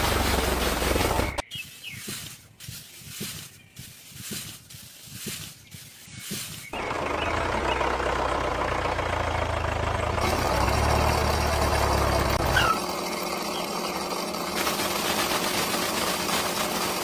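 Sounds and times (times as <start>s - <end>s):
motor running with low hum: 9.6s - 17.0s.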